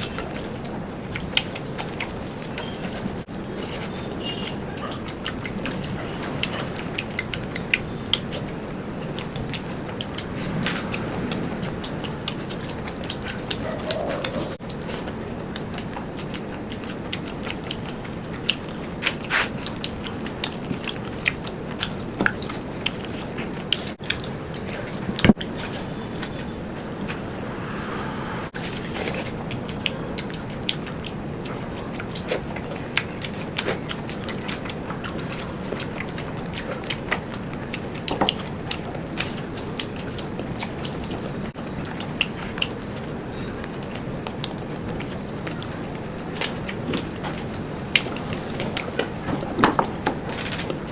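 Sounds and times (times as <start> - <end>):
person chewing food: 0.0 - 50.9
low noise bed: 19.6 - 32.1.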